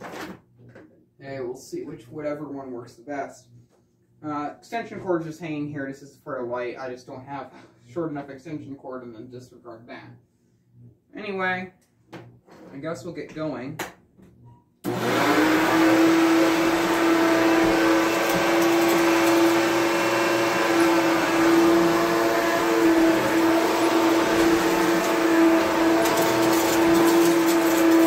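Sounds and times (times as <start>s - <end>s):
vacuum cleaner running: 14.8s - 28.0s.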